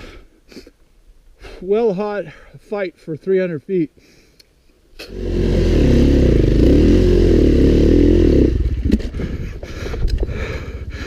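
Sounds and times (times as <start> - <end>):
dirt bike engine revving: 5.0 - 9.1.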